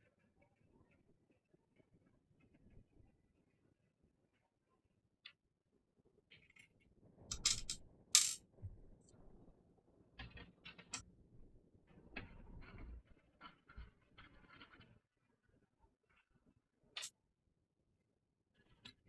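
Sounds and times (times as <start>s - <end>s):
small hard parts clicking: 7.3s - 8.4s.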